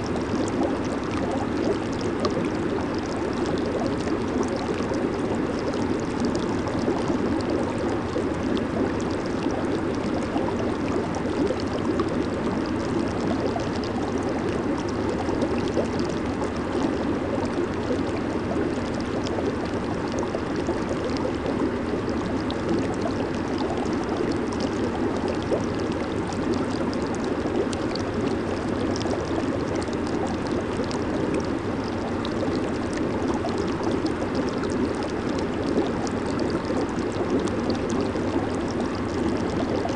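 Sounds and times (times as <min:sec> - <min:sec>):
hot tub jets churning water: 0:00.0 - 0:39.9.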